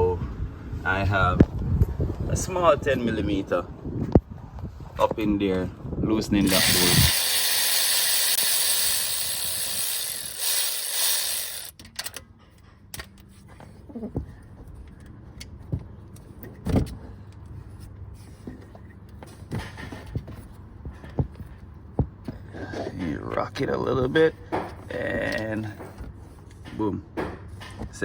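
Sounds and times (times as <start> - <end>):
wrench clicking on metal: 6.5 - 12.2.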